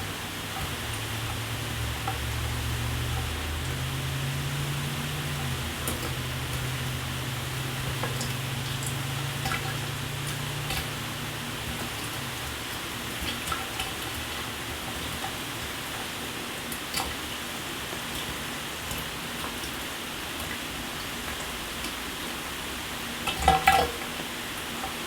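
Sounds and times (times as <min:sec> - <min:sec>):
shower water spraying: 0:00.0 - 0:13.5
sharp drip-like ticks: 0:00.0 - 0:15.8, 0:16.6 - 0:17.2, 0:23.2 - 0:24.1.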